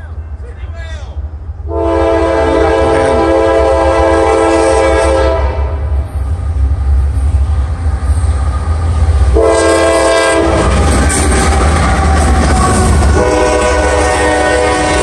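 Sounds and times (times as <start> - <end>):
locomotive engine rumble: 0.0 - 4.8, 5.5 - 15.0
rail noise: 0.0 - 15.0
locomotive air horn: 1.7 - 6.0, 9.3 - 10.7, 12.1 - 15.0.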